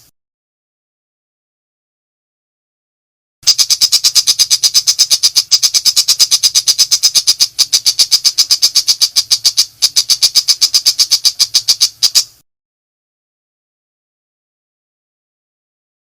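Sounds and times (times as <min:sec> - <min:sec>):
bird rapid high chatter: 0:03.4 - 0:12.4.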